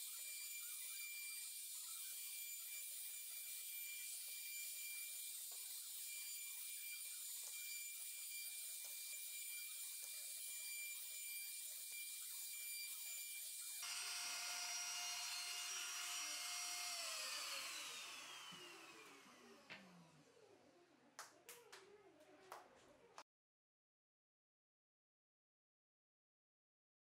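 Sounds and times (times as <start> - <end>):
power tool motor whining: 12.0 - 20.4.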